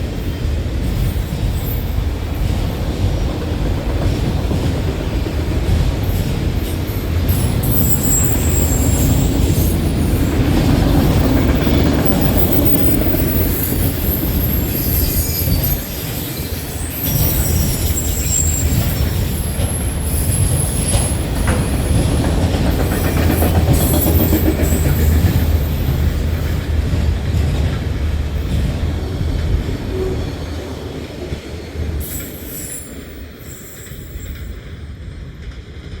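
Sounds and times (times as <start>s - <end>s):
train wheels rumbling on rail: 0.0s - 36.0s
high-pitched wheel squeal: 7.3s - 10.4s, 11.1s - 22.1s, 32.0s - 34.5s
wheel clicks on rail: 18.6s - 29.6s.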